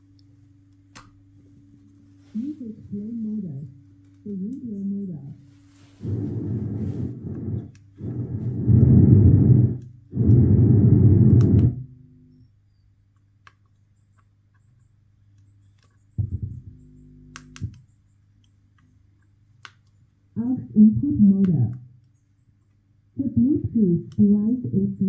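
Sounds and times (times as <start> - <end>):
faint steady hum: 0.0 - 25.0
low rumbling speaker blasts: 6.0 - 12.4, 16.2 - 17.8.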